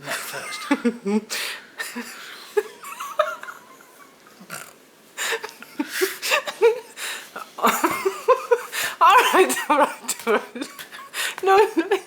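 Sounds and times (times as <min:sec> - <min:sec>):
small vocal noises: 0:04.2 - 0:06.0.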